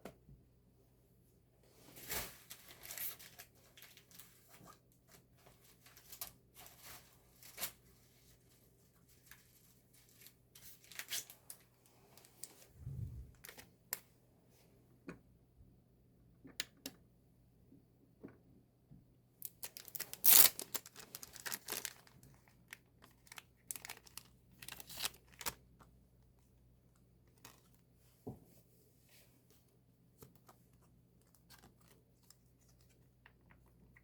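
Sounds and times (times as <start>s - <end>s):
paper and plastic crinkling: 1.9s - 7.8s, 19.5s - 25.6s.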